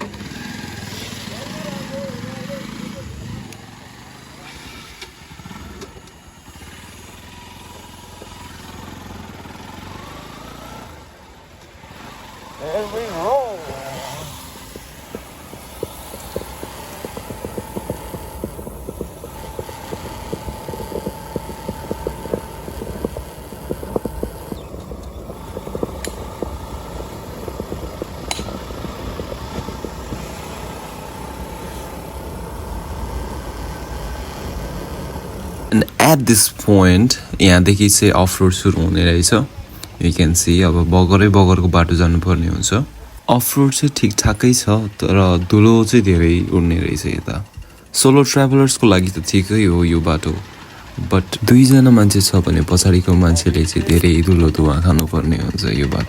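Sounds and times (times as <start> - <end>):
small knocks from riding: 0.0 - 40.0, 40.8 - 56.0
motorcycle engine running: 0.0 - 56.0
road rumble: 0.0 - 56.0
sharp clicks: 11.6 - 37.4.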